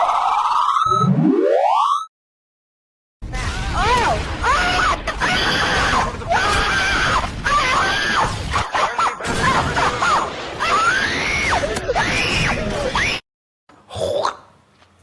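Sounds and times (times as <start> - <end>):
person screaming high-pitched shrieks: 10.6 - 13.2.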